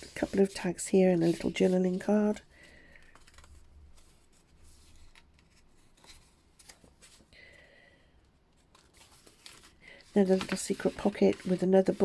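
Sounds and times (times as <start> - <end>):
paper rustling: 0.0 - 7.3, 8.5 - 12.0.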